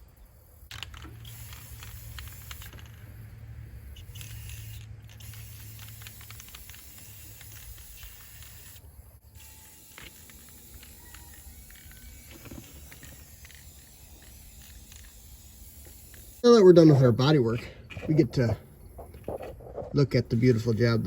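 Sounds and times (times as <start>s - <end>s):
spray paint can hissing: 0.5s - 3.2s, 3.9s - 16.4s.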